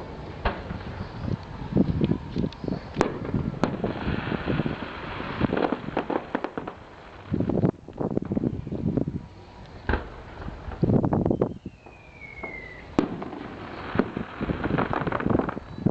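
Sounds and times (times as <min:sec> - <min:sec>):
fireworks hissing crackle: 0:00.0 - 0:15.9
fireworks popping and banging: 0:02.5 - 0:07.6, 0:11.8 - 0:15.9.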